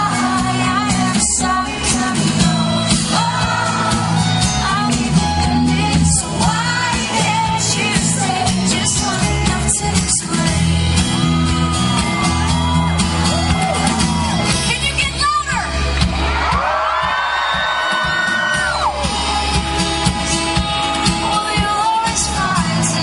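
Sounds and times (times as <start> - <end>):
person singing: 0.0 - 11.0, 20.3 - 23.0
live rock band playing: 0.0 - 23.0
crowd shouting: 11.1 - 14.6, 16.1 - 19.4.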